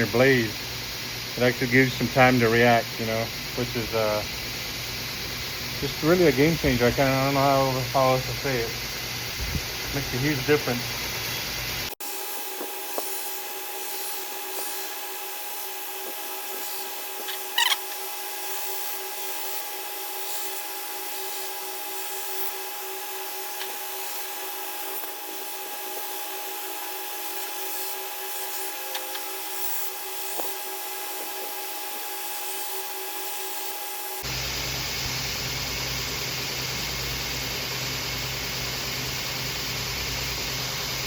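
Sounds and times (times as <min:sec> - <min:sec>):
belt grinder motor hum: 0:03.8 - 0:41.0
metal rasping on grinding belt: 0:12.3 - 0:33.8.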